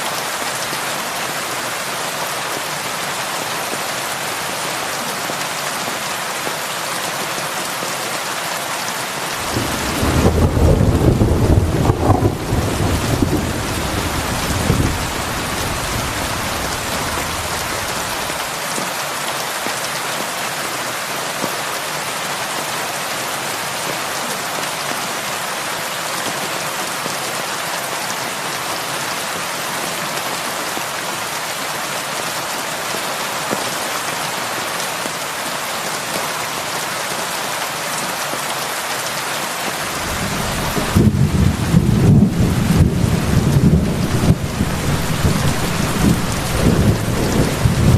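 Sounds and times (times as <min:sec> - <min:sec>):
heavy rain on a roof: 0:00.0 - 0:47.9
low rumble of thunder: 0:09.4 - 0:18.4, 0:40.0 - 0:47.9.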